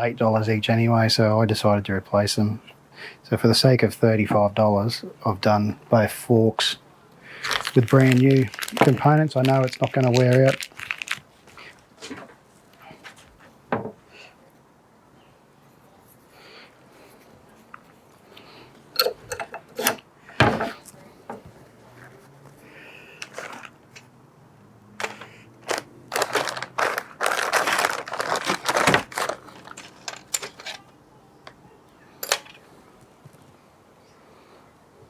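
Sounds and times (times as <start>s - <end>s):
metal tools clicking and knocking: 19.0s - 21.4s, 29.6s - 30.8s, 32.2s - 32.7s.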